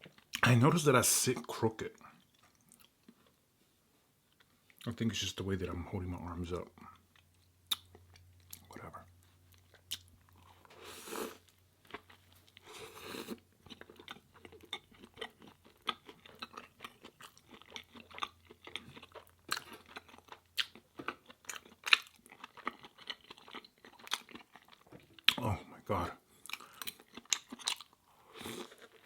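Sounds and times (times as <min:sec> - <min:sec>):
chewing and biting food: 0:09.5 - 0:10.7, 0:11.4 - 0:25.4, 0:26.4 - 0:29.0.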